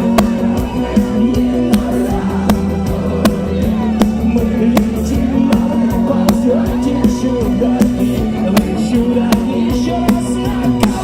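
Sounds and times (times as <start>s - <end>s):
rock band playing live: 0.0s - 11.0s
steady drum beat: 0.0s - 11.0s.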